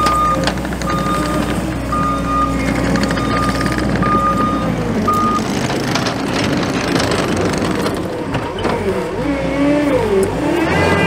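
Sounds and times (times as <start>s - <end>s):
reversing alarm beep: 0.0s - 5.5s
diesel engine and hydraulics: 0.0s - 11.0s.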